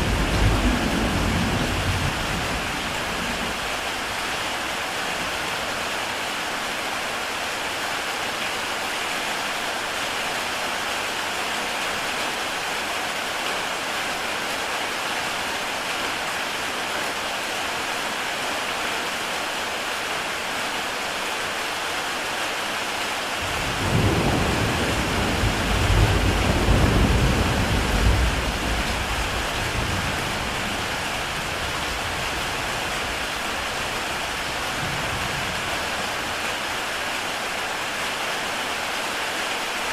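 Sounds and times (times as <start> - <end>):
low thunder rumble: 0.0 - 3.8, 23.4 - 33.2
heavy rain on a tile roof: 0.0 - 39.9.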